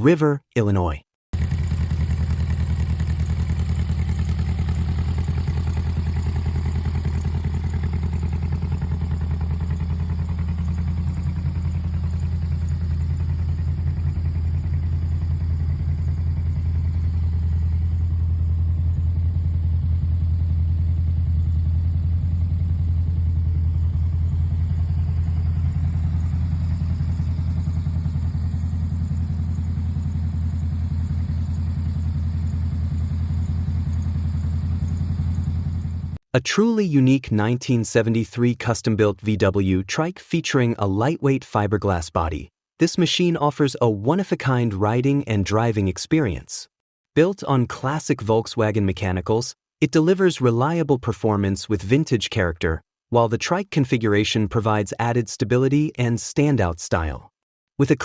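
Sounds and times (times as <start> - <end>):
trike engine idling: 1.4 - 36.2.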